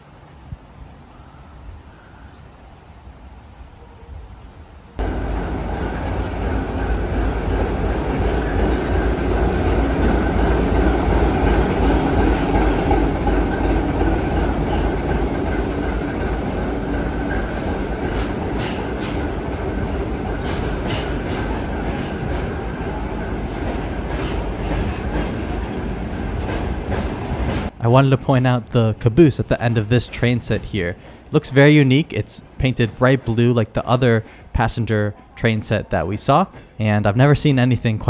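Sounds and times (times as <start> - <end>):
wheels rumbling on rails: 5.0 - 30.8
locomotive engine hum: 5.0 - 32.6.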